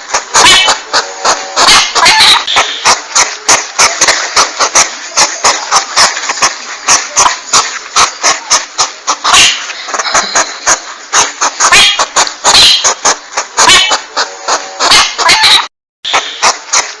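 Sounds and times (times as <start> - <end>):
hedgehog clicking calls: 0.0 - 17.0
steady hiss: 2.5 - 14.8.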